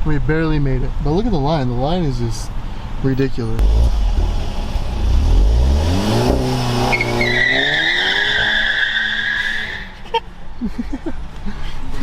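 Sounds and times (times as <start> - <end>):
tyres squealing: 3.2 - 10.0
car engine revving: 3.6 - 9.8.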